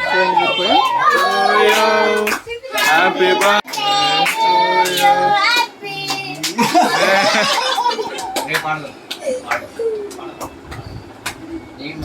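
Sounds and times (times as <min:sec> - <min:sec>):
child singing: 0:00.0 - 0:07.5
voices singing together: 0:00.0 - 0:08.4.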